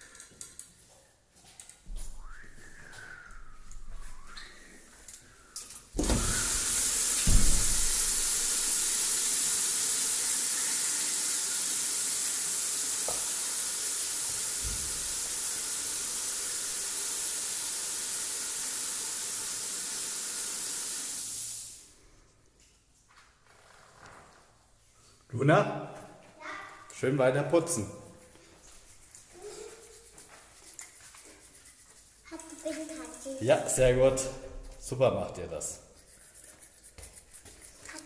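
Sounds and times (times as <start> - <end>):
water running from a tap: 6.0 - 21.9, 29.5 - 34.9.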